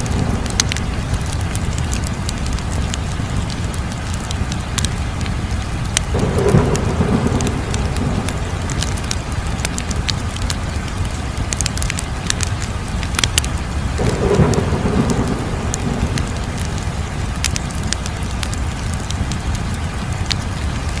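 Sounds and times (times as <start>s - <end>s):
wood fire crackling: 0.0s - 21.0s
low rumble: 6.1s - 19.3s.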